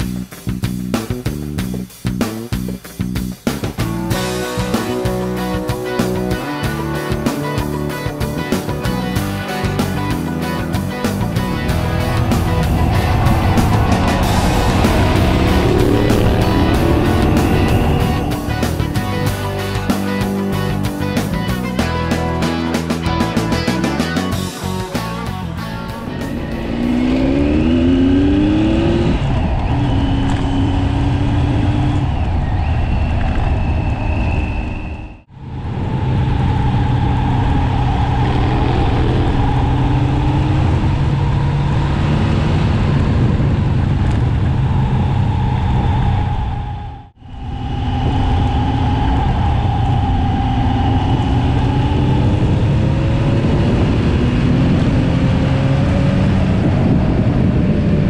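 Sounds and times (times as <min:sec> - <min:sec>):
motorcycle engine accelerating: 0:00.0 - 0:58.0
wind rush: 0:09.9 - 0:22.1, 0:24.3 - 0:58.0.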